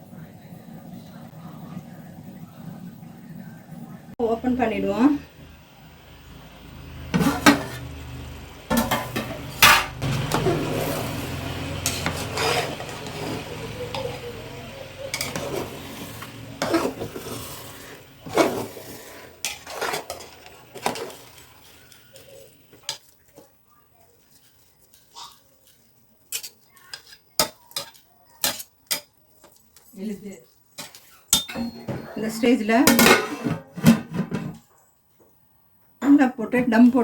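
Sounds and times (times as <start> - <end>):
lid and ladle clanking on pot: 7.2 - 7.8, 8.7 - 10.7, 15.1 - 15.7, 30.8 - 34.5.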